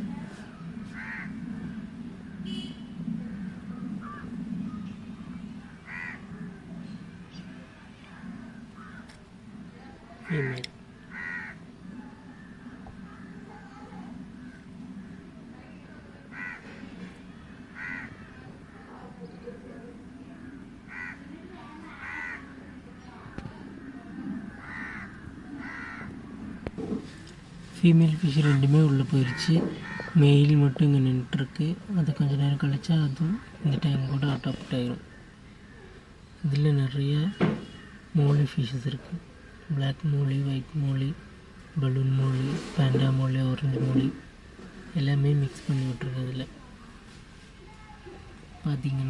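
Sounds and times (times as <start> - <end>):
steady low hum: 0.0 - 47.6
crows cawing: 0.9 - 4.3, 5.7 - 6.6, 8.2 - 9.2, 10.2 - 11.7, 12.4 - 13.7, 16.3 - 18.9, 20.8 - 21.3, 21.9 - 22.7, 23.8 - 26.7, 28.4 - 30.3.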